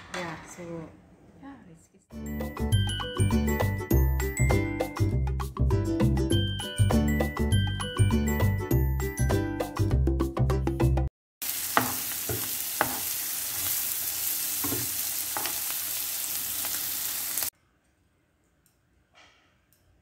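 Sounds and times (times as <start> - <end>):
music jingle: 2.2 - 10.1
eggs sizzling in hot oil: 11.4 - 17.5.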